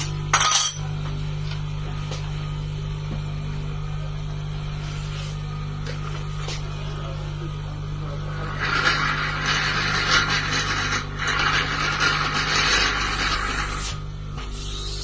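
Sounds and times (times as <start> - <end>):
electrical hum: 0.0 - 15.0
rough scraping sound: 8.3 - 14.0.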